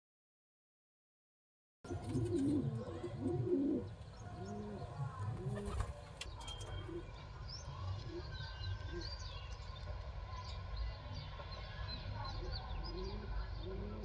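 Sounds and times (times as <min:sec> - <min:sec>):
pigeon cooing: 0:01.9 - 0:06.0, 0:12.8 - 0:14.0.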